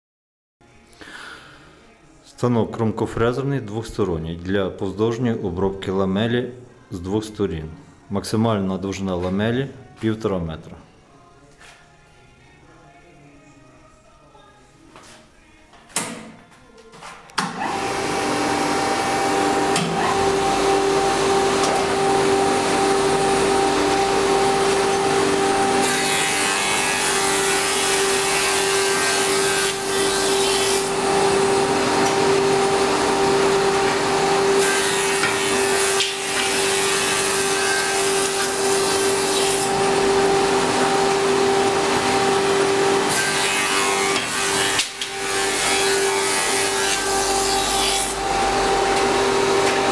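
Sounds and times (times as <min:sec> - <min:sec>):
milling machine motor whine: 0:17.6 - 0:25.8, 0:30.9 - 0:34.6, 0:39.7 - 0:43.1, 0:47.2 - 0:49.9.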